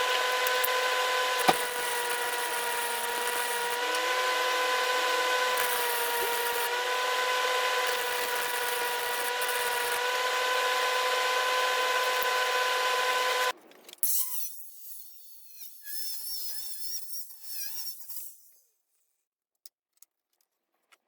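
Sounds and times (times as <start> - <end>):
power tool whining: 0.0 - 13.5.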